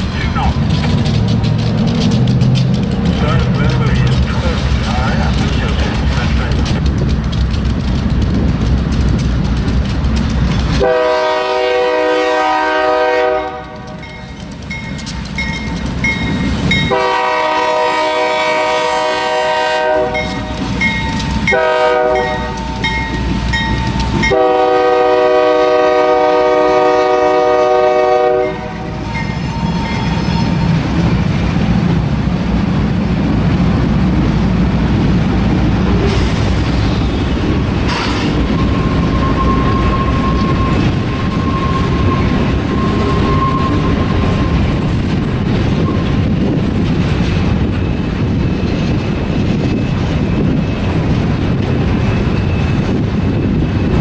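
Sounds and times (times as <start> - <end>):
freight train rolling past: 0.0 - 54.0
locomotive air horn: 10.8 - 14.0, 16.9 - 20.6, 21.4 - 22.8, 23.8 - 30.7, 37.9 - 44.8
train wheel squeals: 14.0 - 17.0, 20.1 - 24.6, 28.8 - 30.9, 36.0 - 46.6, 47.2 - 54.0.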